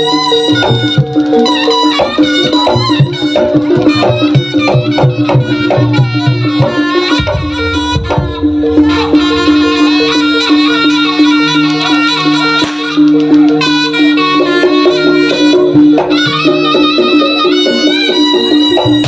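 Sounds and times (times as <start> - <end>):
fast hand drumming: 0.0 - 19.0
reedy shawm melody: 0.0 - 19.0.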